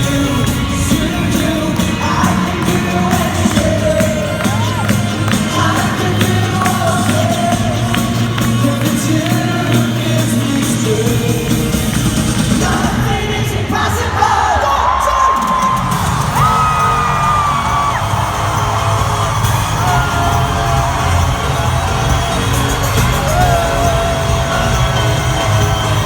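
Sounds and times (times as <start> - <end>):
people singing: 0.0 - 15.7
live worship band music: 0.0 - 26.0.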